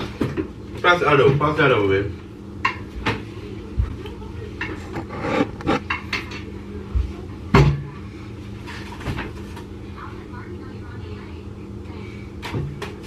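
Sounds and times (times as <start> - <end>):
dishes and pots clattering: 2.6 - 3.2, 4.6 - 6.5.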